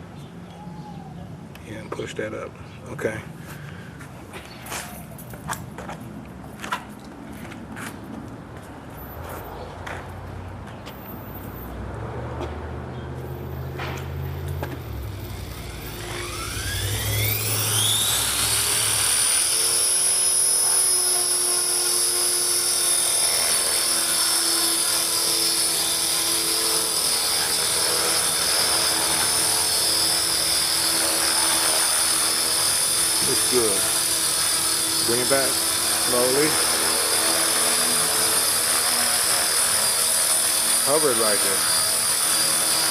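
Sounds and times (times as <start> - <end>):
rc helicopter whine: 13.2 - 42.9.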